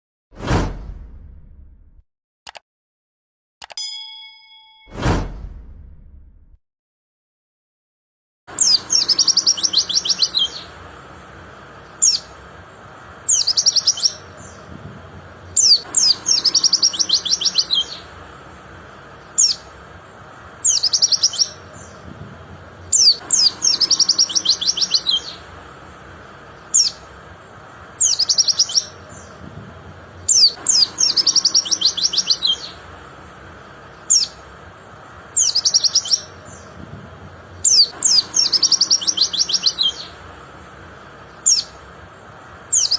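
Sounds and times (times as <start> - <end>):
bird twittering and chirping: 8.6 - 10.8, 11.8 - 14.8, 15.5 - 18.2, 19.2 - 22.1, 22.8 - 25.6, 26.6 - 29.5, 30.2 - 32.9, 33.9 - 36.8, 37.6 - 40.3, 41.2 - 42.9.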